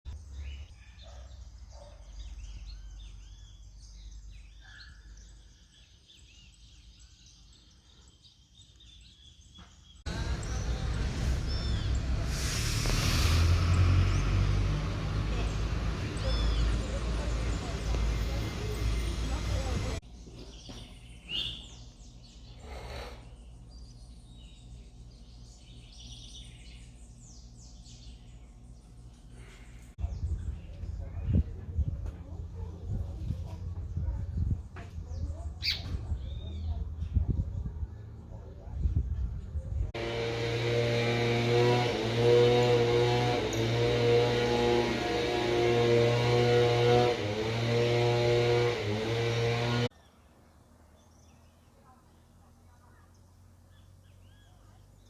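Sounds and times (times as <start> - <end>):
small birds chirping: 0.1 - 12.3, 13.7 - 39.9, 40.9 - 55.0
brief rush of noise: 11.0 - 14.1.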